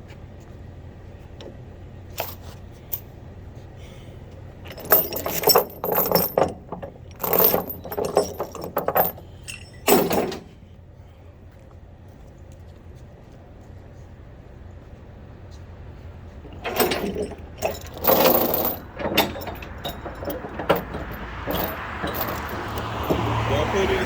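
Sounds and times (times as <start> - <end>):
metal jangling and rattling: 2.1 - 3.1, 4.6 - 10.6, 16.4 - 23.5.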